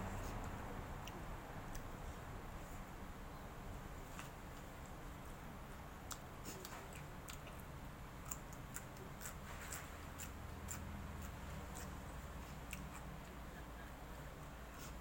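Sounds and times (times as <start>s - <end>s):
low steady hum: 0.0s - 15.0s
person chewing: 6.0s - 13.5s.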